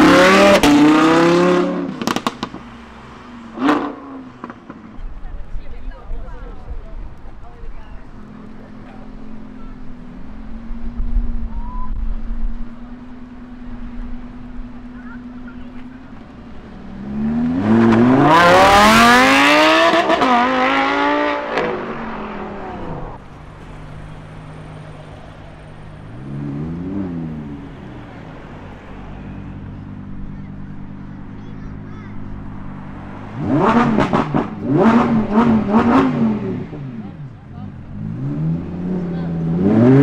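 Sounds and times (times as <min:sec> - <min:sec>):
car engine revving hard: 0:00.0 - 0:04.7, 0:16.6 - 0:23.2, 0:32.4 - 0:40.0
engines idling: 0:01.7 - 0:20.2, 0:21.6 - 0:40.0
short engine rev: 0:23.8 - 0:40.0.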